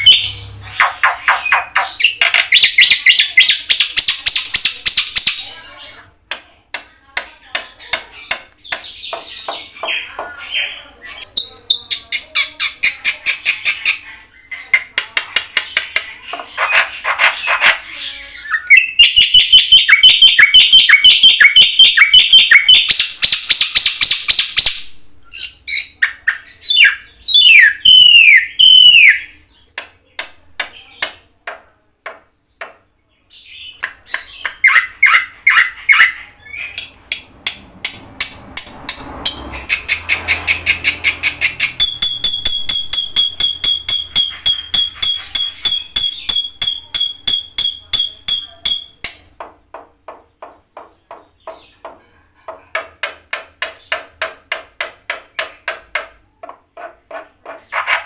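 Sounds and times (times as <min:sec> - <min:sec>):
bird singing chirps and trills: 0:00.0 - 0:06.0, 0:15.7 - 0:29.7, 0:39.3 - 0:49.2.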